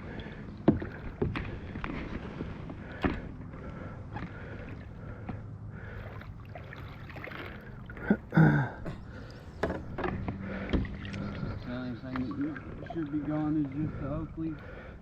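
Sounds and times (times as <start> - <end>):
water sloshing around a kayak: 0.0 - 15.0
knocks and clicks on hull: 0.6 - 5.4, 8.8 - 13.8.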